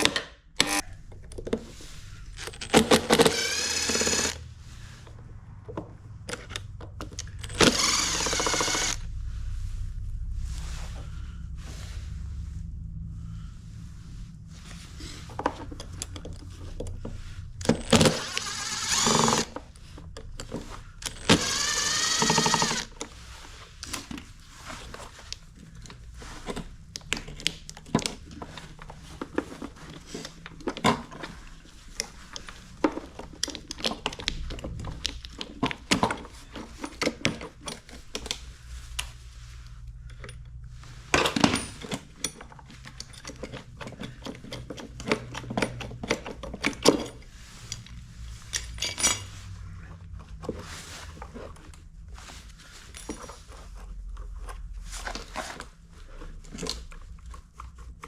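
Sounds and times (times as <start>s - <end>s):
lawn mower whirring: 0.6s - 5.1s, 6.4s - 9.1s, 14.5s - 23.3s
tools clicking on metal and plastic: 2.4s - 4.4s, 6.2s - 9.0s, 17.6s - 23.1s, 32.0s - 38.4s, 41.2s - 49.3s.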